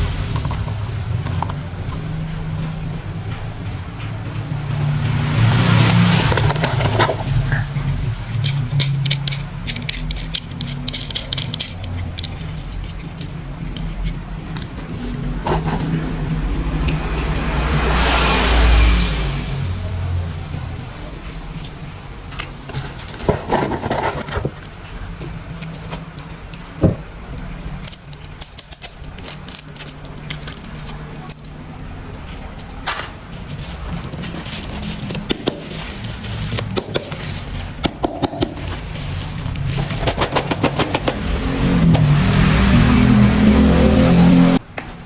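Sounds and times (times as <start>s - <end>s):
plastic toy parts clicking and rattling: 6.3s - 16.0s, 21.6s - 41.2s.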